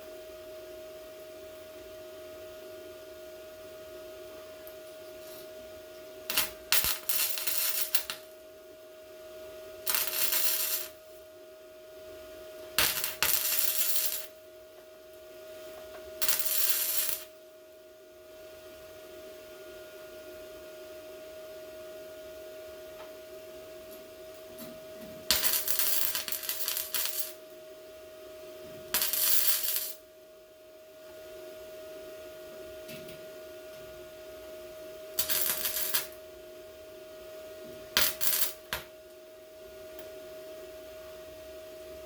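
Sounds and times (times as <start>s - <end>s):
steady hum: 0.0s - 42.0s
welding arc crackling: 6.3s - 8.4s, 9.8s - 11.0s, 12.8s - 14.3s, 16.2s - 17.4s, 25.3s - 27.4s, 28.9s - 30.0s, 35.2s - 36.2s, 38.0s - 38.8s.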